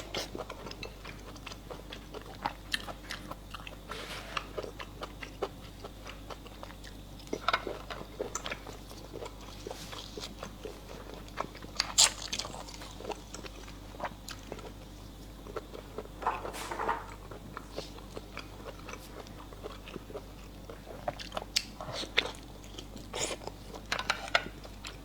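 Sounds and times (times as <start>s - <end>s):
chewing and lip-smacking: 4.6s - 16.1s, 17.2s - 25.0s
wet eating burst: 11.8s - 13.2s.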